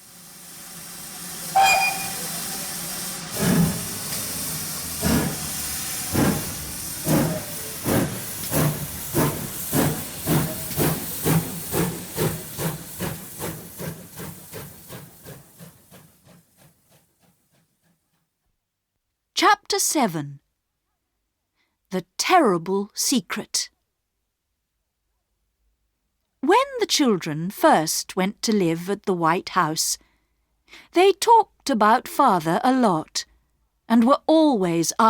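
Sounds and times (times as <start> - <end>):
hiss of steam: 0.0 - 16.8
steam locomotive exhaust chuffs: 0.0 - 18.2
train whistle: 1.5 - 2.8.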